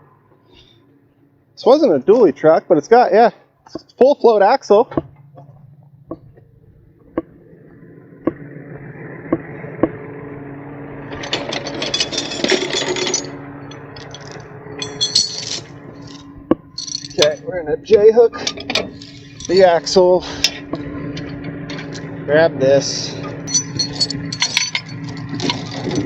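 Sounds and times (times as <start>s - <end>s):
engine running: 0.0s - 26.0s
metal hooks and chain clinking: 11.1s - 17.6s, 18.4s - 22.2s, 23.1s - 26.0s.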